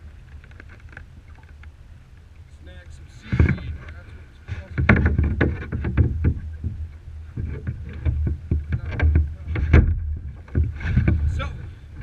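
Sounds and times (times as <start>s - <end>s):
paddle knocks and splashes: 3.2s - 12.0s
wind on microphone: 3.2s - 12.0s.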